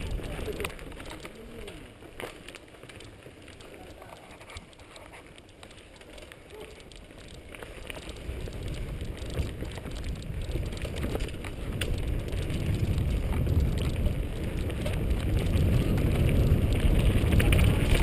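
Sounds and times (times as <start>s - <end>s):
wind rumble on microphone: 0.0s - 1.8s, 6.5s - 18.0s
bike rattles and clicks: 0.0s - 18.0s
bike tyres on dirt trail: 0.0s - 18.0s.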